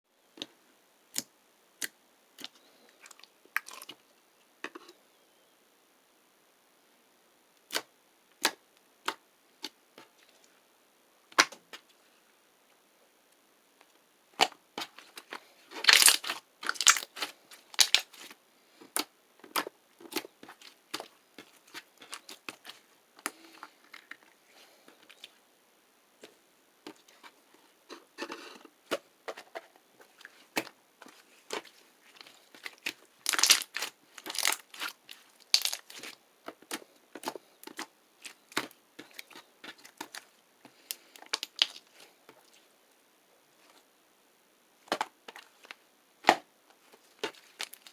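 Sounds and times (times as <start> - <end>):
crinkling and crackling: 13.8 - 25.4, 26.2 - 43.9, 44.8 - 47.9.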